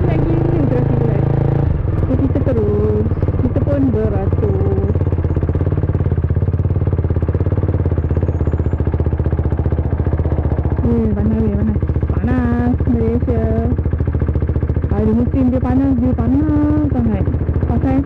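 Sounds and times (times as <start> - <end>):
woman's voice: 0.0 - 1.3, 2.1 - 5.0, 10.8 - 13.8, 14.9 - 18.0
motorcycle engine running: 0.0 - 18.0.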